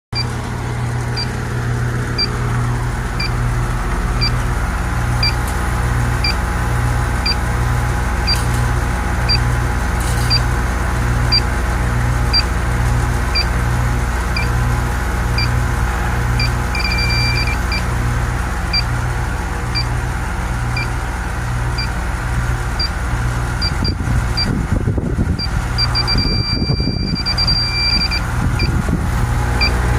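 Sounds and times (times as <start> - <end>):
leak detector beeping: 0.2 - 0.4, 1.2 - 1.4, 2.2 - 2.4, 3.2 - 3.4, 4.2 - 4.4, 5.2 - 5.5, 6.2 - 6.4, 7.2 - 7.5, 8.2 - 8.6, 9.2 - 9.5, 10.2 - 10.5, 11.3 - 11.5, 12.3 - 12.5, 13.3 - 13.6, 14.4 - 14.6, 15.4 - 15.6, 16.4 - 17.9, 18.7 - 19.0, 22.8 - 23.0, 23.6 - 24.5, 25.4 - 28.8, 29.6 - 29.8
air conditioner pulsing hum: 0.2 - 29.9
detector alarm tone: 5.2 - 5.4, 8.2 - 8.5, 16.4 - 17.9, 25.4 - 28.8
low rumbling on microphone: 23.1 - 29.9.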